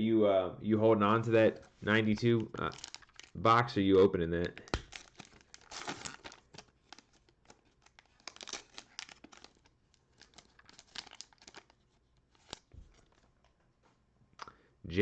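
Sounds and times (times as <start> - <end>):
plastic wrapper crinkling: 1.5 - 13.6.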